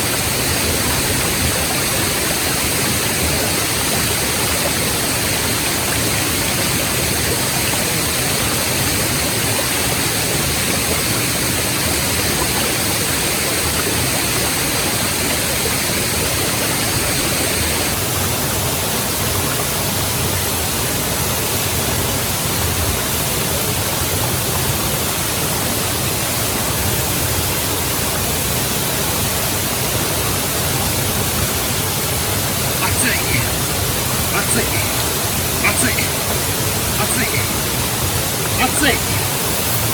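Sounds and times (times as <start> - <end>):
waterfall rushing: 32.6 - 39.9.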